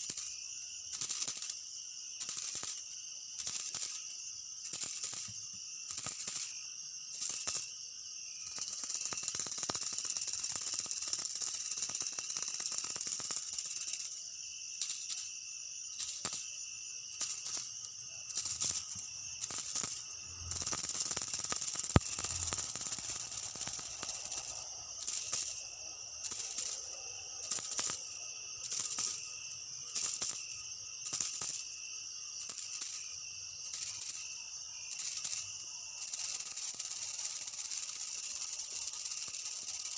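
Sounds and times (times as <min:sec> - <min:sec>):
insects droning in chorus: 0:00.0 - 0:39.9.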